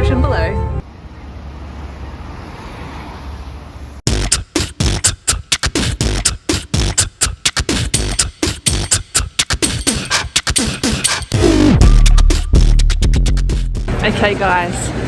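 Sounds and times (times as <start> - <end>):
beatboxing: 4.1 - 13.9
heavy steady bass: 4.1 - 14.0.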